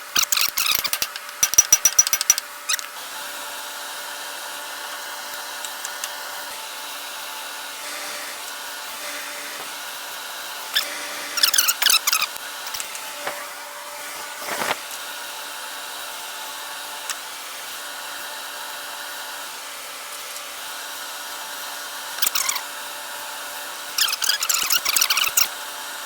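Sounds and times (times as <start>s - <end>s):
steady machine hum: 7.6s - 15.2s.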